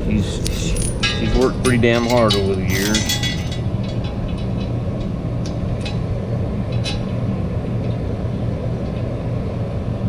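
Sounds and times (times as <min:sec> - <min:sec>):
engine droning: 0:00.0 - 0:10.0
faint metallic clinks: 0:00.2 - 0:04.8.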